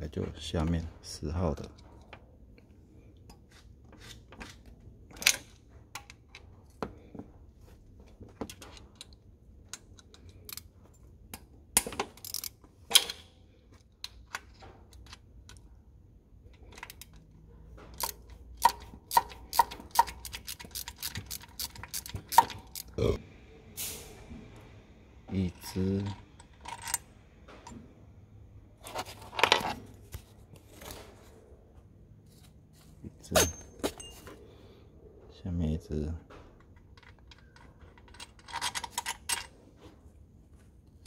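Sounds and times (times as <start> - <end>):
socket wrench ratcheting: 9.0 - 10.7, 11.8 - 13.3, 17.9 - 23.0.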